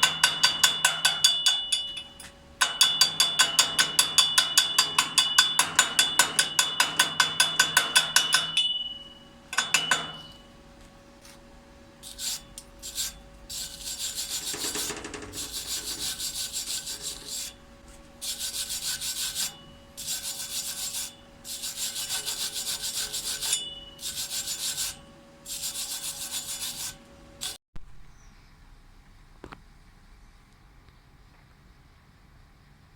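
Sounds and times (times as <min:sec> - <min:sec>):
hand tool scraping steel: 0:12.0 - 0:17.6, 0:18.2 - 0:27.6.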